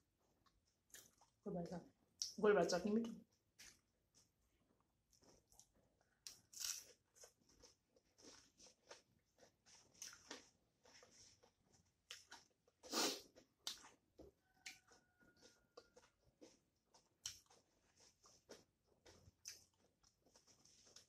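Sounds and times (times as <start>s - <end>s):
person chewing with wet smacks: 0.2s - 1.4s, 3.3s - 21.0s.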